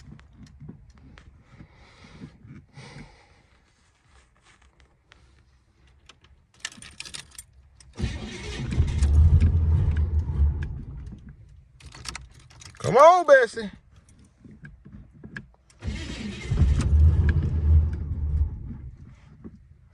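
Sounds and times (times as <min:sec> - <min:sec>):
starter cranking engine: 0:07.8 - 0:12.2, 0:14.4 - 0:19.5.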